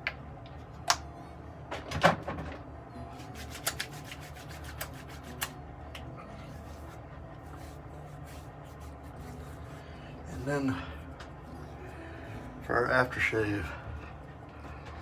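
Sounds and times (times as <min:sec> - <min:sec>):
soft rubbing on skin: 0:03.2 - 0:05.6, 0:06.3 - 0:11.8.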